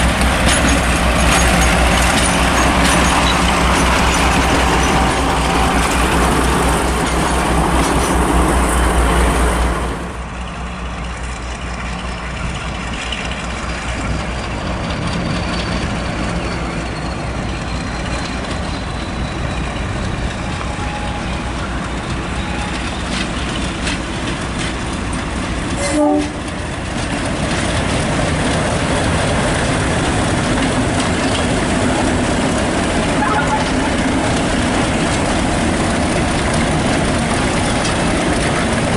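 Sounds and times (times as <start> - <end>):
train running on rails: 0.0 - 38.9
train horn toot: 25.8 - 26.6, 33.2 - 34.0.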